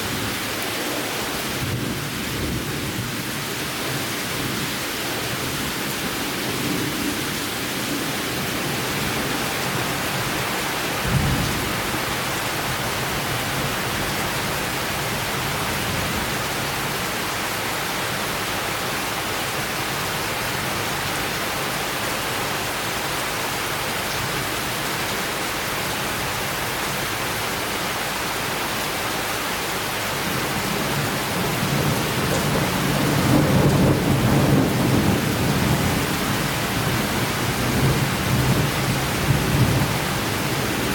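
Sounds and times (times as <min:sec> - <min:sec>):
heavy rain: 0:00.0 - 0:40.9
thunder rumbling: 0:30.3 - 0:40.9.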